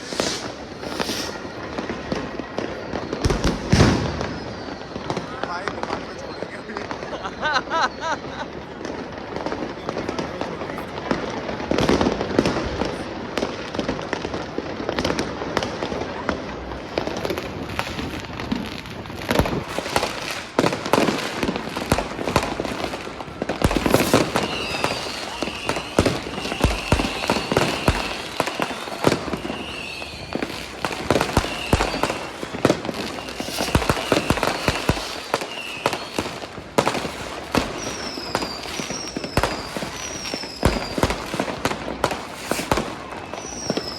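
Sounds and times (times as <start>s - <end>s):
short falling whistles: 0.0s - 1.7s, 3.0s - 5.4s, 24.0s - 30.5s, 31.3s - 32.5s, 33.1s - 34.8s, 37.8s - 41.1s, 42.5s - 43.9s
warbling firework whistles: 0.0s - 8.7s, 16.8s - 43.9s
firecrackers banging and crackling: 0.0s - 43.9s.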